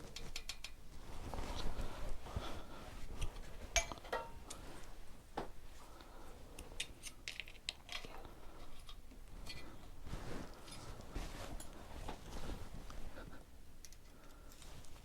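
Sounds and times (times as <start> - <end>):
hand tools clinking on metal: 3.8 - 4.4.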